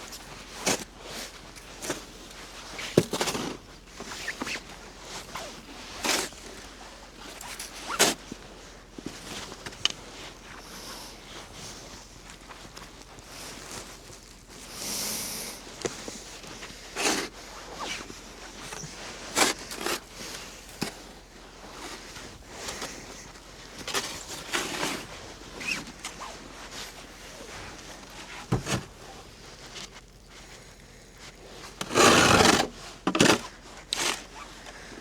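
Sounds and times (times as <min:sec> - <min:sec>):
snow shovel scraping snow: 0:02.8 - 0:08.3, 0:14.6 - 0:29.8, 0:31.5 - 0:35.0.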